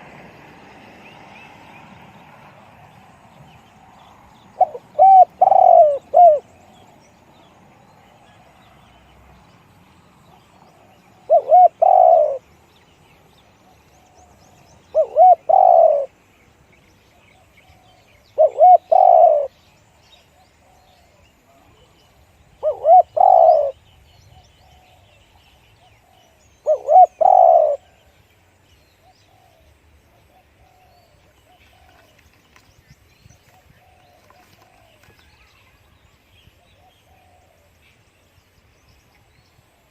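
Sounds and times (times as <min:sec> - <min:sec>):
dove cooing: 0:04.6 - 0:06.5, 0:10.8 - 0:12.4, 0:14.9 - 0:16.2, 0:17.6 - 0:19.5, 0:22.6 - 0:23.8, 0:26.6 - 0:28.0, 0:36.8 - 0:37.7.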